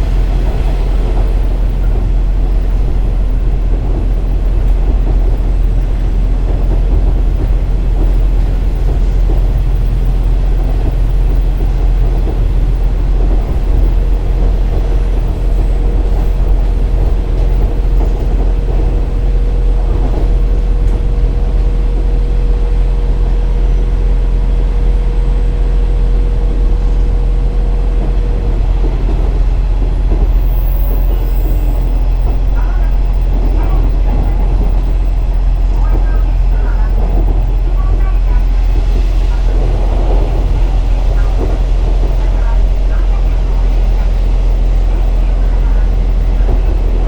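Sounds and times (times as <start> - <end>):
diesel engine rumble: 0.0 - 47.0
train wheels on rail: 0.0 - 47.0.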